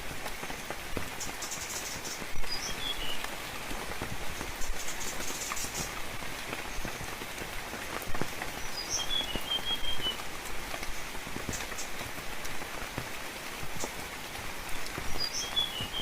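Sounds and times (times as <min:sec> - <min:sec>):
rain in forest: 0:00.0 - 0:16.0
raindrops ticking: 0:00.0 - 0:16.0
bird chirping: 0:01.2 - 0:03.2, 0:08.6 - 0:10.2, 0:15.1 - 0:16.0.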